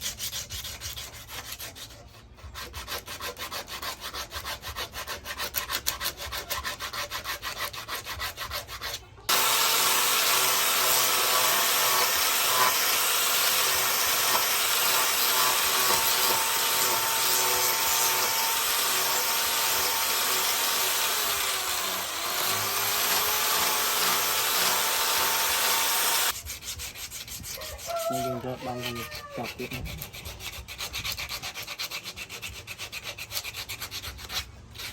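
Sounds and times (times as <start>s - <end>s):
hand tool rasping on steel: 0.0s - 34.9s
power grinder whining: 9.3s - 26.4s.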